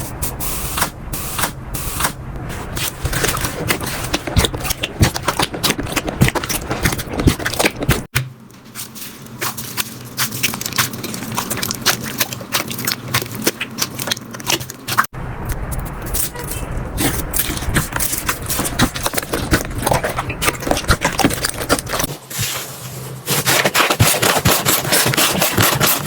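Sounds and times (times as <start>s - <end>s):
slime crackling and popping: 3.3s - 8.1s, 9.4s - 16.2s.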